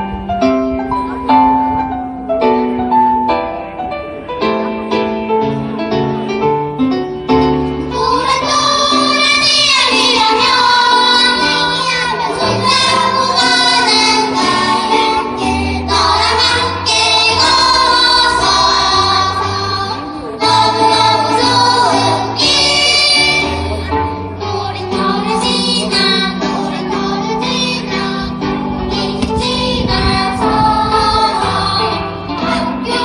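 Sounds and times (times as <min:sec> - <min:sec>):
instrumental accompaniment: 0:00.0 - 0:33.0
children's choir singing: 0:07.8 - 0:33.0.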